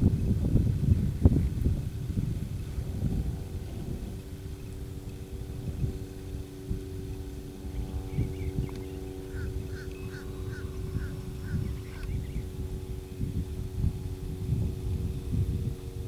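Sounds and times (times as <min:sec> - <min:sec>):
steady low hum: 0:00.0 - 0:16.0
bird calling: 0:07.7 - 0:12.6.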